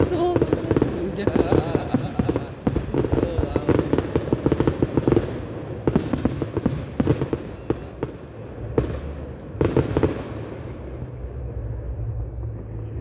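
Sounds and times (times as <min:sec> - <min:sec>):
fireworks bangs: 0:00.0 - 0:13.0
low rumble: 0:06.9 - 0:13.0.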